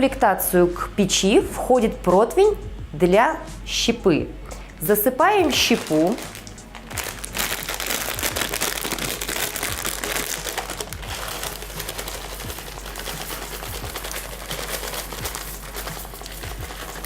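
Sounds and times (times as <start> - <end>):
wood chips rattling on metal tray: 5.4 - 17.0.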